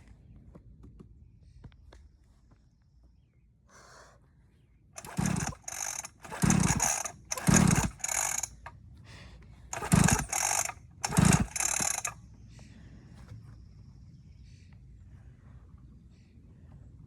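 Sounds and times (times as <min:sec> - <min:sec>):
dirt bike engine cranking: 0:05.0 - 0:08.7, 0:09.7 - 0:12.2.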